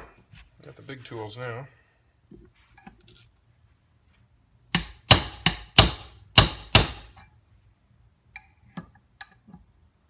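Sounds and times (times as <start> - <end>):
hammer blows on metal: 4.8 - 7.2.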